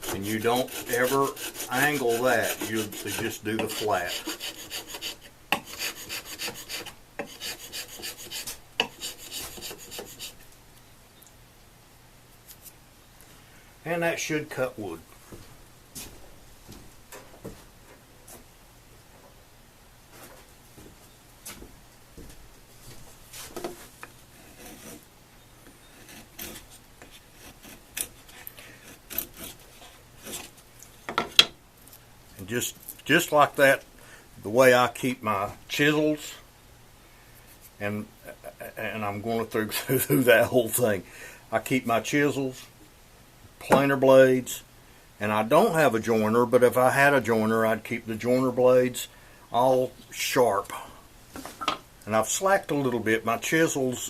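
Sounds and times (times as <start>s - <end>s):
chisel scraping on abrasive paper: 0.0s - 10.4s, 24.4s - 25.0s, 25.9s - 30.6s.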